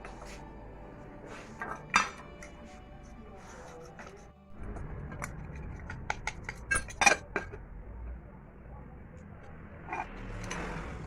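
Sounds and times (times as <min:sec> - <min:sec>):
metal pot parts clinking: 0:01.6 - 0:02.5.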